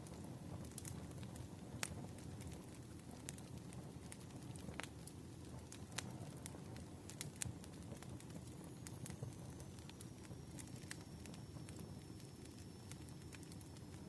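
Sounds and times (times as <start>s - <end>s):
low rumble of burning logs: 0.0s - 14.0s
wood fire crackling and popping: 0.0s - 14.0s
faint high whistle: 8.9s - 14.0s.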